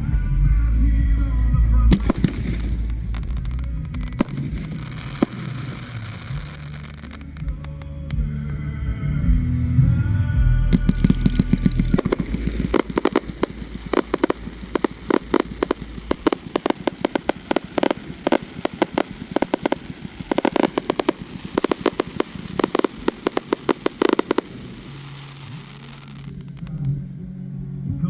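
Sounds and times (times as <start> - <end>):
fireworks cracking and banging: 1.9 - 8.0, 10.8 - 26.9.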